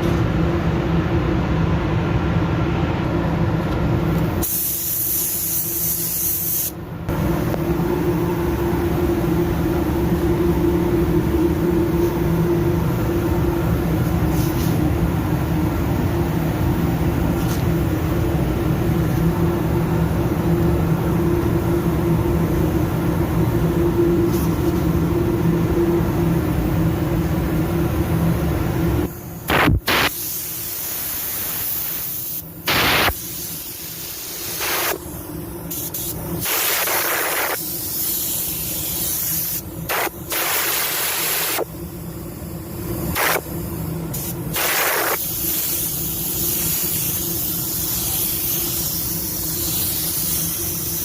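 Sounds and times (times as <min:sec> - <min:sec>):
machine hum with hiss: 0:00.0 - 0:51.0
paint spray gun hissing: 0:04.4 - 0:07.8, 0:29.0 - 0:42.3, 0:43.0 - 0:51.0.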